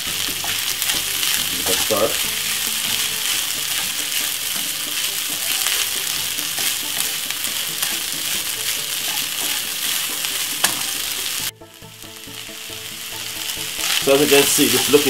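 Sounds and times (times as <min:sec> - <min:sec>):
faint steady tones: 0:00.0 - 0:15.0
fried rice sizzling in a pan: 0:00.0 - 0:15.0
wooden spatula scraping a pan: 0:00.0 - 0:15.0.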